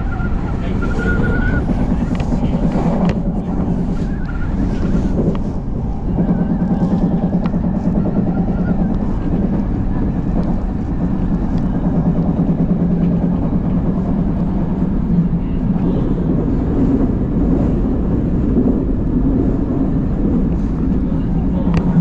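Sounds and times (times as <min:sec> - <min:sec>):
train wheels rumbling on track: 0:00.0 - 0:22.0.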